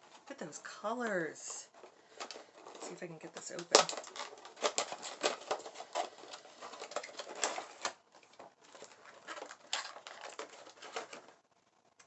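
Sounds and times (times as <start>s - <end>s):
packaging rustling and clicking: 1.7s - 12.0s.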